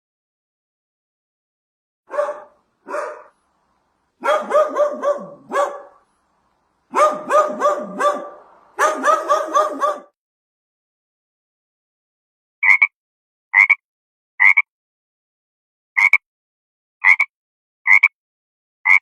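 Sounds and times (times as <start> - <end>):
dog yapping: 2.1 - 3.3, 4.2 - 6.0, 6.9 - 10.1.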